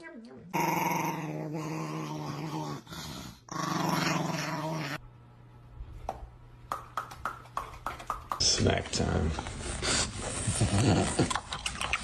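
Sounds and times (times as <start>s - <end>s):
dog growling: 0.4s - 5.0s, 9.9s - 11.5s.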